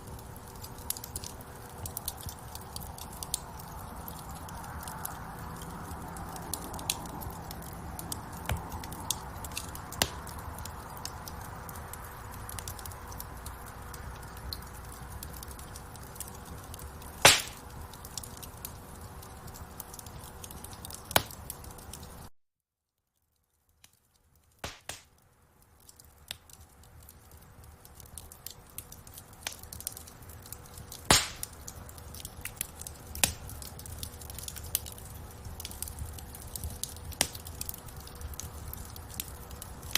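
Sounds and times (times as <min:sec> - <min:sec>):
wood fire crackling: 0:00.0 - 0:22.3, 0:23.2 - 0:39.9
loud sharp pops of fire: 0:06.2 - 0:11.8, 0:14.5 - 0:18.5, 0:19.5 - 0:21.9, 0:24.6 - 0:25.2, 0:27.8 - 0:39.9.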